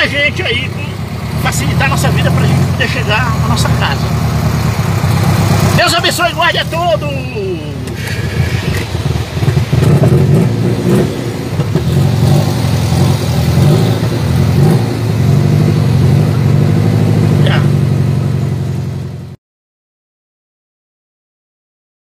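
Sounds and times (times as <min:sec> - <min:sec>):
car engine running heard inside: 0:00.0 - 0:19.4.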